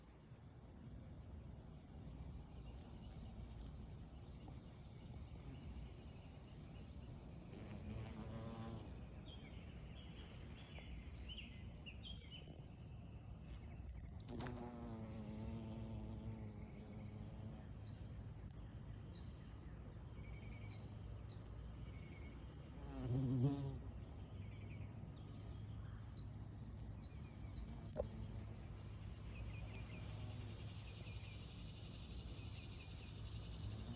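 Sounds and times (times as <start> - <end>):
high insect chirping: 2.6 - 33.9
bumblebee buzzing: 7.5 - 9.0, 14.3 - 17.6, 22.8 - 23.9.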